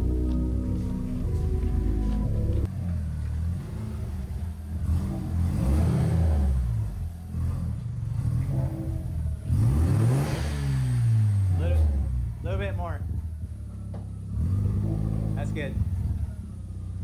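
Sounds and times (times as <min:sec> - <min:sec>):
rotary engine revving: 0:01.2 - 0:13.5, 0:14.2 - 0:17.0.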